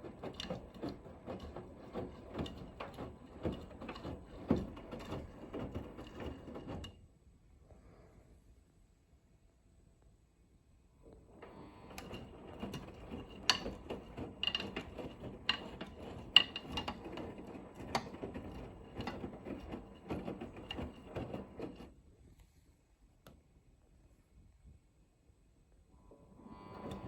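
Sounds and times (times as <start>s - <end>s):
washing machine drum tumbling: 0.0s - 6.9s, 11.9s - 21.9s
clicks and knocks: 11.9s - 21.8s.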